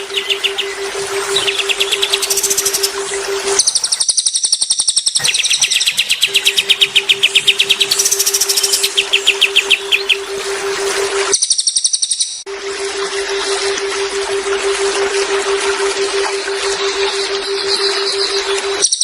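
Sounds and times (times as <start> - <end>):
songbird trilling: 0.0 - 3.0, 3.6 - 10.4
steady low hum: 5.2 - 11.3, 12.5 - 18.8.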